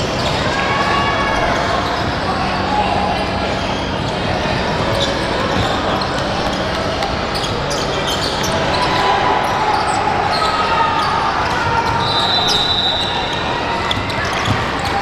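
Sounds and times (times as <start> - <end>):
echoing crowd voices: 0.0 - 15.0
shoes squeaking: 4.9 - 15.0.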